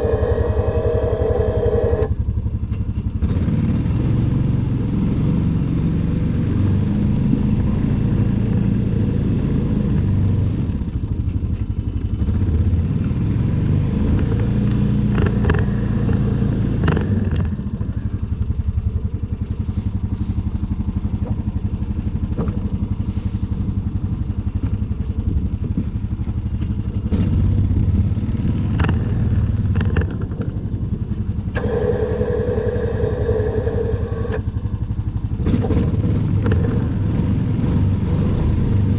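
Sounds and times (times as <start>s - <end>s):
steady whine: 0.0s - 2.2s, 31.5s - 34.5s
snow-clearing machine engine: 0.0s - 38.9s.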